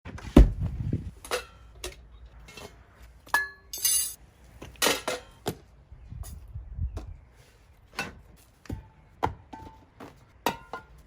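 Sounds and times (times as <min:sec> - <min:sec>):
heavy thump: 0:00.3 - 0:01.0
hard objects clinking: 0:03.4 - 0:04.2.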